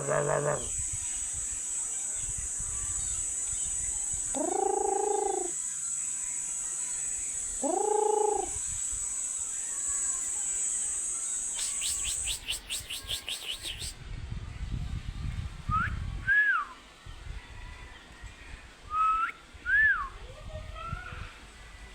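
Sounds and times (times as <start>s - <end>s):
talking bird whistling: 4.4s - 5.6s, 11.6s - 14.0s
fast chirping trill: 11.6s - 14.0s.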